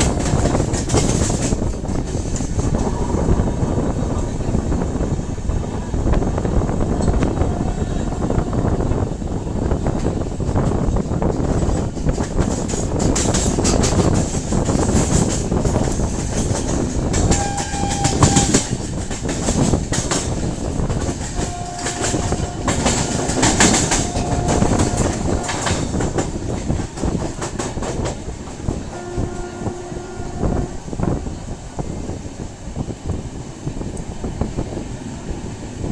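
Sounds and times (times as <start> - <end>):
wheels clicking over rail joints: 0.0 - 3.2, 9.6 - 35.9
train rumbling on rails: 0.0 - 35.9.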